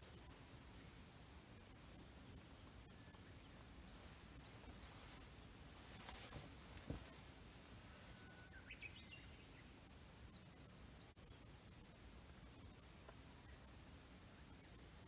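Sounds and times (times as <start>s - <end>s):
faint bird chirps: 2.5s - 11.5s.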